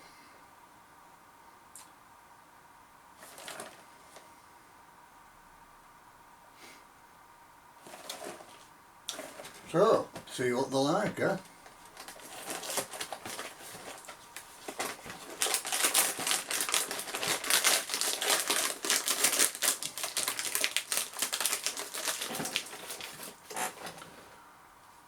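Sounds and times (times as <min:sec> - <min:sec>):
wrapper crinkling: 0:03.2 - 0:03.8, 0:07.8 - 0:09.9, 0:11.6 - 0:24.0.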